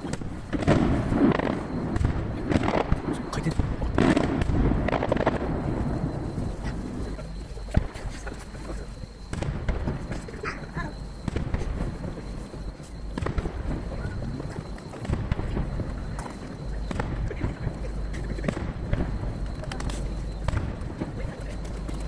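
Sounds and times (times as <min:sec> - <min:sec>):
distant firework shells bursting: 0:00.0 - 0:22.0
faint spectator chatter: 0:05.8 - 0:22.0.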